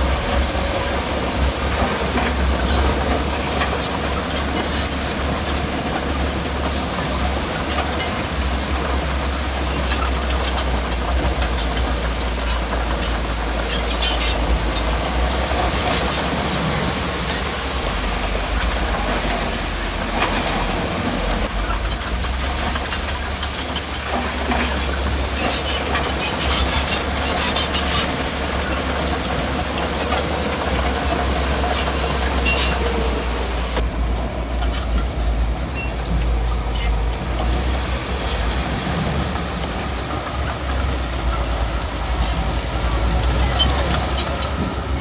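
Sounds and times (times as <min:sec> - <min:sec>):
diesel machinery engine hum: 0:00.0 - 0:45.0
high squeals: 0:34.5 - 0:37.2.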